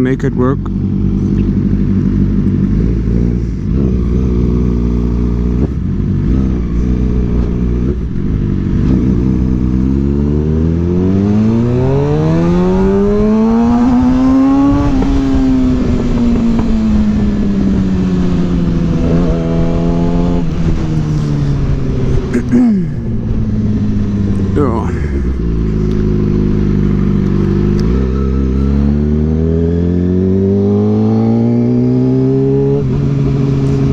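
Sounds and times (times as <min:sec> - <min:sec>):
motorcycle engine revving: 0:00.0 - 0:33.9
wind buffeting microphone: 0:10.6 - 0:22.4.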